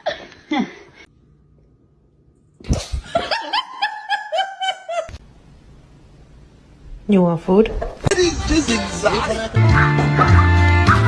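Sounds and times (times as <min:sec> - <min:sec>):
person laughing high-pitched: 0:02.7 - 0:05.2.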